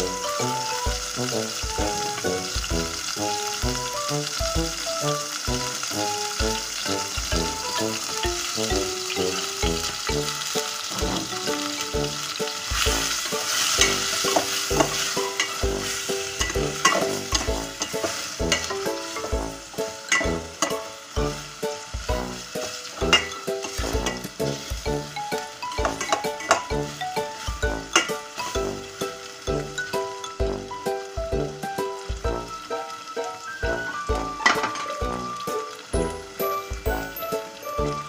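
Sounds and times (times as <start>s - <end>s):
background music with a beat: 0.0s - 38.0s
food sizzling in a pot: 0.0s - 38.0s
spoon scraping a pot: 13.2s - 19.4s, 23.1s - 24.5s.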